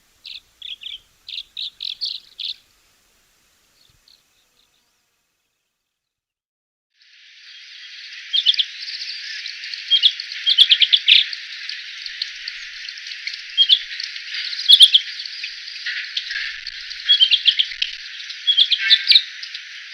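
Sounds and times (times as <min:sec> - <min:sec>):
birds chirping: 0:00.0 - 0:03.0, 0:07.4 - 0:19.9
steady high hiss: 0:00.0 - 0:05.5, 0:07.0 - 0:19.9.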